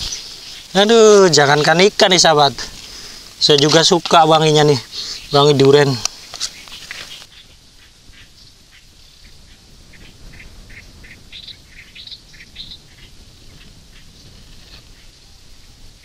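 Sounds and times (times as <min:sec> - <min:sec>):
small birds chirping: 0:00.0 - 0:16.0
rustle with click: 0:05.5 - 0:07.6.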